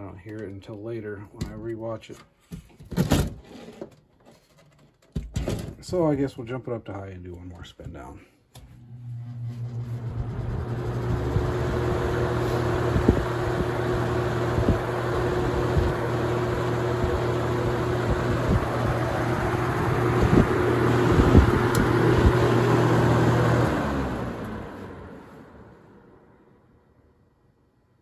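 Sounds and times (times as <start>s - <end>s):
fan air rushing: 8.6s - 26.2s
fan motor hum: 8.6s - 26.3s.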